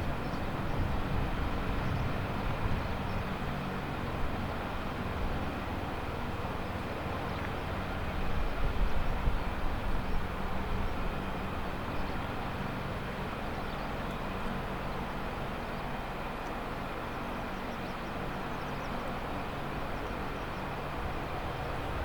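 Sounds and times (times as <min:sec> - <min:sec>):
helicopters droning: 0:00.0 - 0:22.0.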